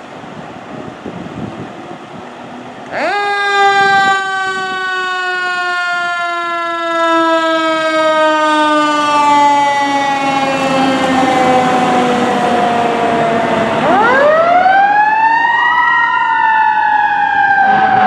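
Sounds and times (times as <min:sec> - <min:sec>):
fire engine siren wailing: 0:00.0 - 0:18.0
vehicle noise: 0:00.0 - 0:18.0.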